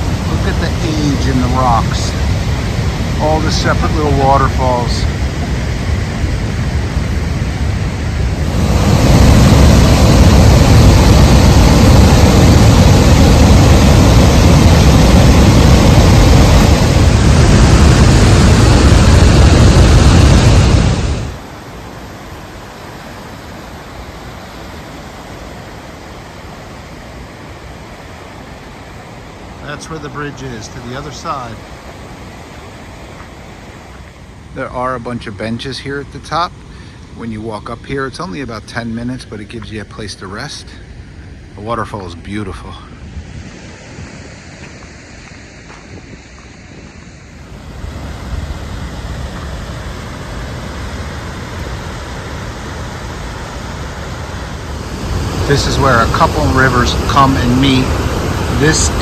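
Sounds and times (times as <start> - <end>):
wind buffeting microphone: 0.0 - 21.5, 42.7 - 59.0
waterfall rushing: 0.0 - 37.3, 46.7 - 59.0.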